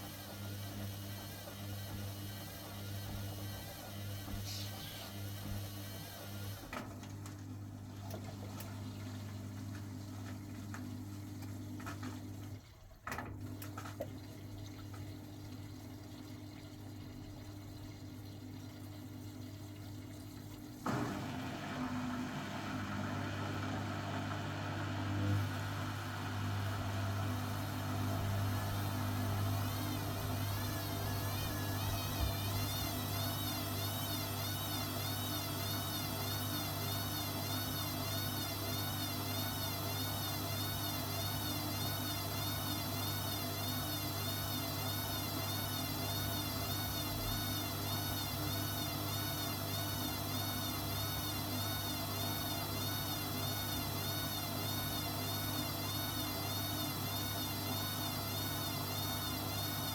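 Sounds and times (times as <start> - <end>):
washer-dryer humming: 0.0 - 59.9
high motor whine wavering: 28.4 - 37.8.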